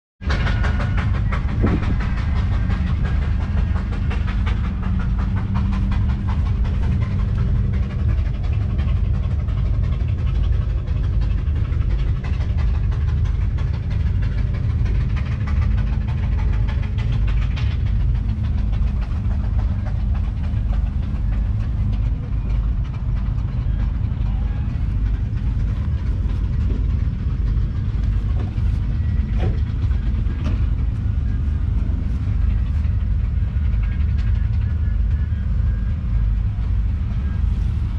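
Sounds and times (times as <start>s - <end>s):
tractor engine running: 0.2s - 37.9s.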